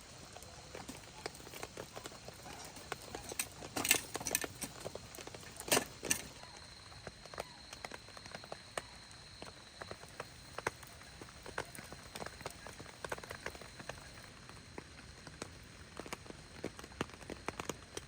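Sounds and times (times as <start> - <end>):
raindrops pattering and dripping: 0.0 - 18.0.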